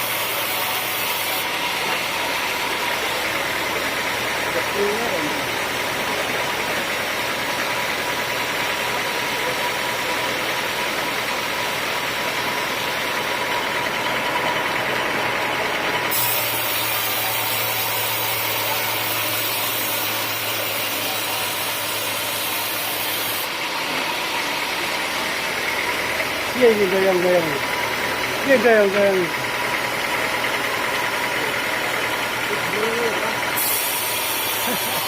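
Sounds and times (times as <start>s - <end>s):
sawmill machinery running: 0.0s - 35.0s
bright hiss: 16.1s - 23.5s, 33.5s - 35.0s.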